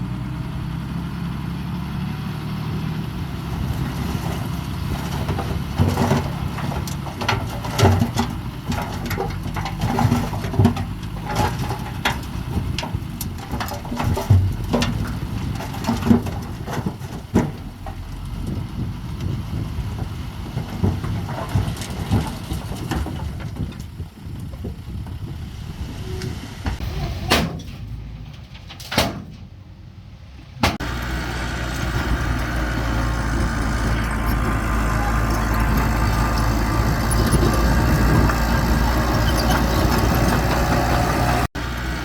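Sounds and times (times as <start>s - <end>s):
bulldozer diesel engine: 0.0s - 42.0s
sharp knocks and clanks: 5.0s - 18.0s.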